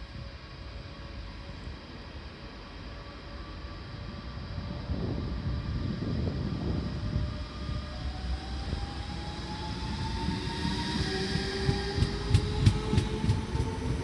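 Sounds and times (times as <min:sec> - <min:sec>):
electric train rumbling: 0:00.0 - 0:14.0
traction motor whine rising: 0:07.7 - 0:14.0.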